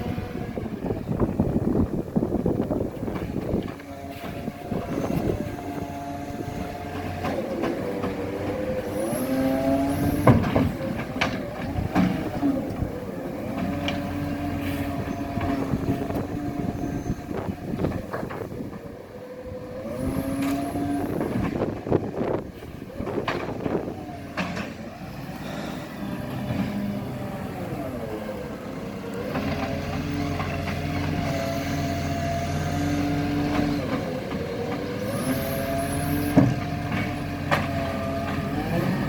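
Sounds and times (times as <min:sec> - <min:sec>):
garbage truck engine revving: 0:00.0 - 0:39.0
knocks and clanks: 0:10.2 - 0:12.4.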